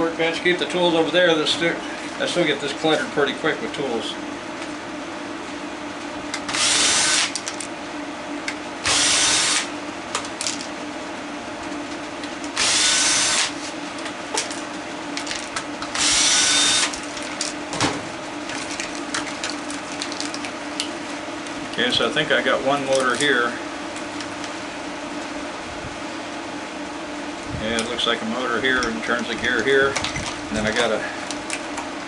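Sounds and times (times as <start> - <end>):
steady low hum: 0.0 - 32.0
cordless drill running: 6.5 - 7.4, 8.8 - 9.7, 12.6 - 13.6, 15.9 - 17.0.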